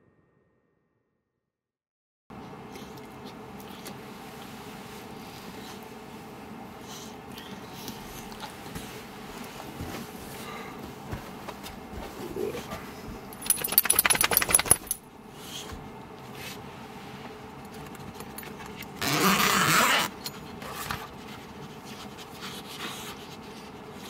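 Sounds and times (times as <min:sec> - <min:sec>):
metallic jangling: 0:13.4 - 0:15.0.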